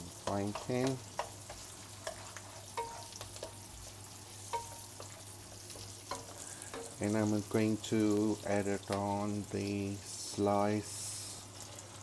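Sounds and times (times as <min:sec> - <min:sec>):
onion sizzling in frying pan: 0:00.0 - 0:12.0
utensil scraping pan: 0:00.3 - 0:03.9.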